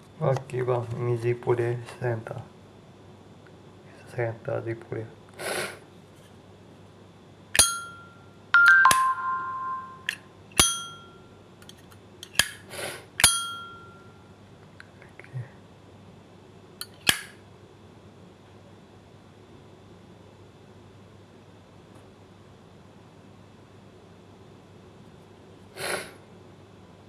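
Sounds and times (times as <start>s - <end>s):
lighter lid clicking open and shut: 11.6s - 12.6s.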